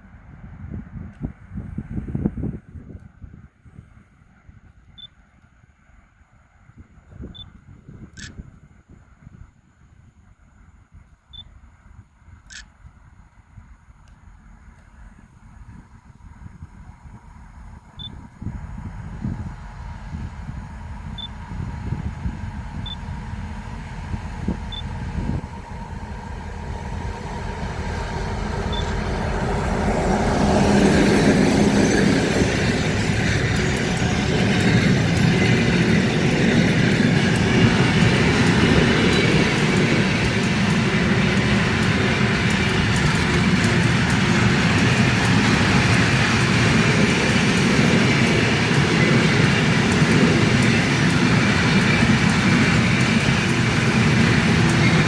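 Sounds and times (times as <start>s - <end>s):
freight train rumbling: 0.0s - 55.0s
wagons clicking on rails: 30.8s - 55.0s.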